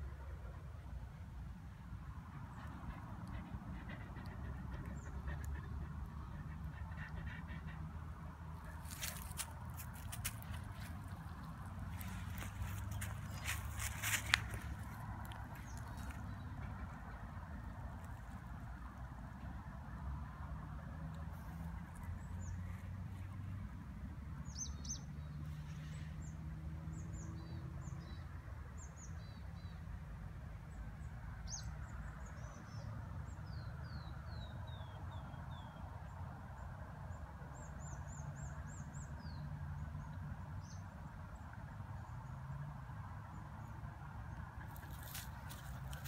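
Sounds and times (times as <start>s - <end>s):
songbirds chirping: 2.4s - 18.4s, 43.3s - 46.0s.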